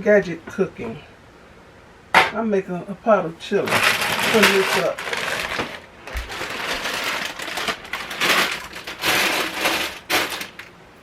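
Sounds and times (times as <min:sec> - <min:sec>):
food packages rustling: 0:03.6 - 0:11.0.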